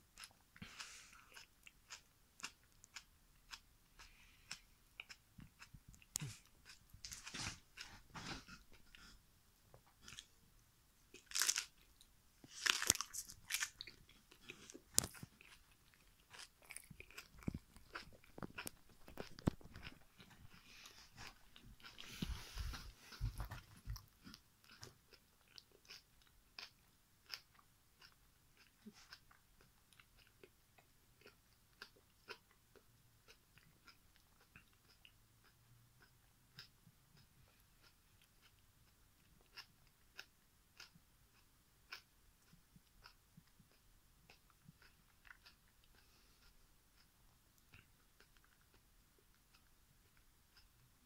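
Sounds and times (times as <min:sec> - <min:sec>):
chewing with mouth clicks: 0:00.1 - 0:09.0, 0:11.1 - 0:50.9
loud crunching bites: 0:11.2 - 0:11.8, 0:12.5 - 0:14.0.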